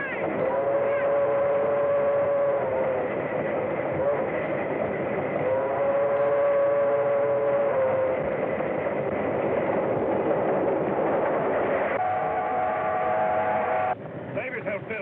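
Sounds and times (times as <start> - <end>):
steam locomotive whistle: 0.0 - 9.8, 11.6 - 14.0
train running at speed: 0.0 - 15.0.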